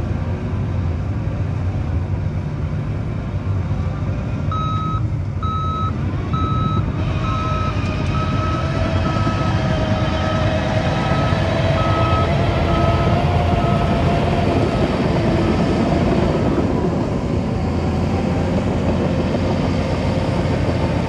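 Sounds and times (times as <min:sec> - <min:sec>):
diesel engine running: 0:00.0 - 0:21.0
backup alarm beeping: 0:04.5 - 0:09.6, 0:10.3 - 0:14.0.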